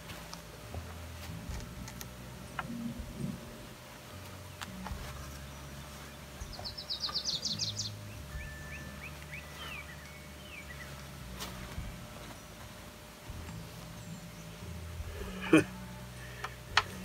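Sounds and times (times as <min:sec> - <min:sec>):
steady low hum: 0:00.0 - 0:17.0
songbird trilling: 0:05.4 - 0:11.2.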